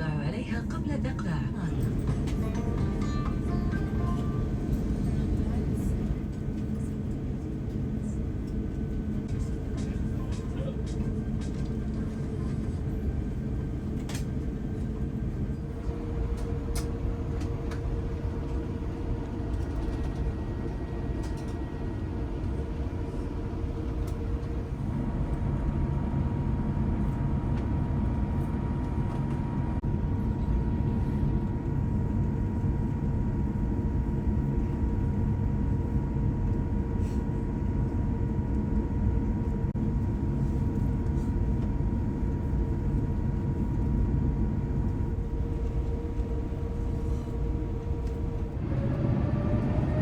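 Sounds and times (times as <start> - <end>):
aircraft cabin engine rumble: 0.0 - 50.0.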